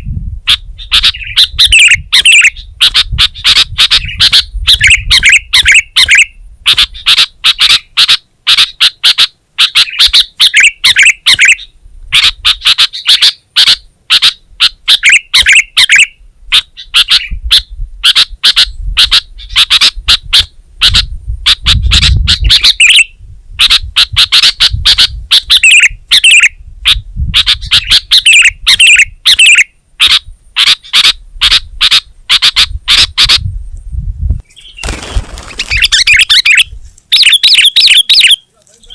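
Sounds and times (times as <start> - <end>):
bulbul singing chattering notes: 0.9 - 17.4, 35.6 - 38.9.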